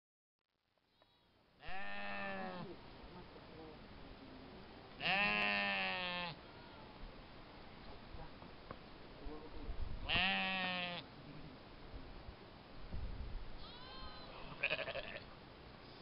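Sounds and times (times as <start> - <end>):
sheep bleating: 1.6 - 2.8, 5.0 - 6.9, 10.1 - 11.1, 13.7 - 15.3.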